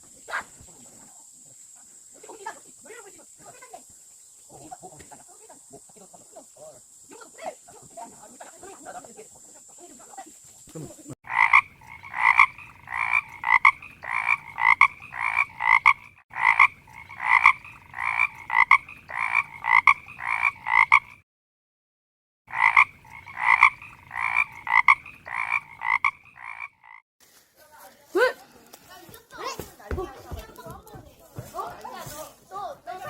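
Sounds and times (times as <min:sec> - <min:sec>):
frog croaking: 0:11.2 - 0:21.2, 0:22.5 - 0:27.0.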